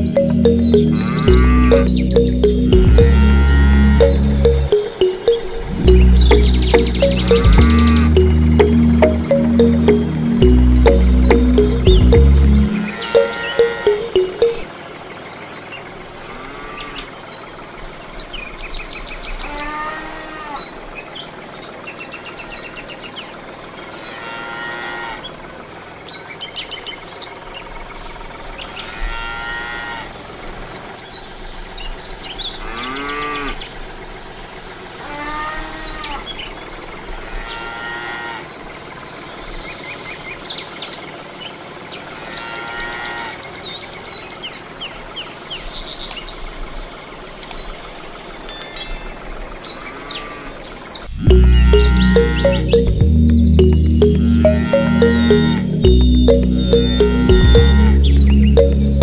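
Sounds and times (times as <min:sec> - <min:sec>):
birds chirping: 0:00.0 - 0:14.7, 0:51.0 - 0:59.0
cows mooing: 0:00.9 - 0:01.9, 0:03.0 - 0:04.3, 0:24.2 - 0:25.2, 0:37.4 - 0:38.4.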